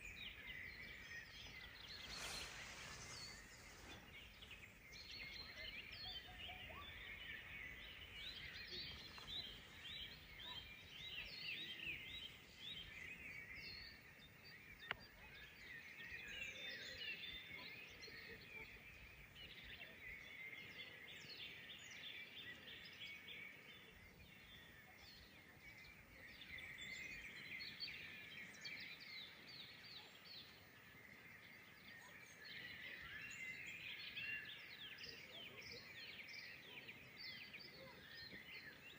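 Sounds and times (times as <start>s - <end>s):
small birds singing and chirping: 0.0s - 38.9s.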